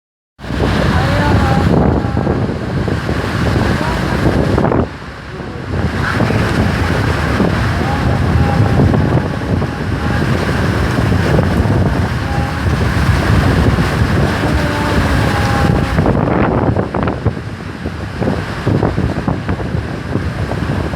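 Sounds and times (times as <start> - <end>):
heavy rain: 0.4 - 20.9
wind buffeting microphone: 0.4 - 20.9.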